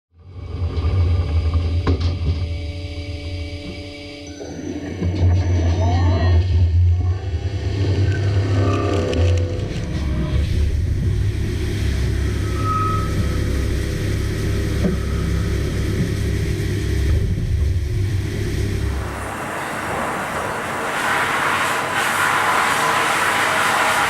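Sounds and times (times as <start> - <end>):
machine heavy low rumble: 5.0 - 24.0
bright hissing noise: 18.8 - 24.0.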